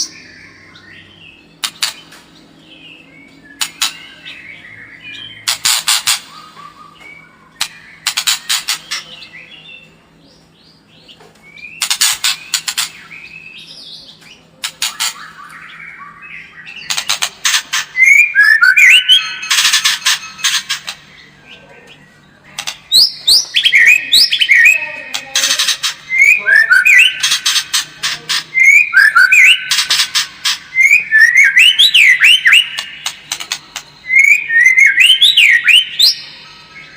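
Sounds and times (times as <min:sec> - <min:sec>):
bird whistled phrases: 0:18.0 - 0:19.5, 0:23.0 - 0:25.0, 0:26.1 - 0:27.3, 0:28.6 - 0:29.8, 0:30.7 - 0:33.0, 0:33.9 - 0:36.3.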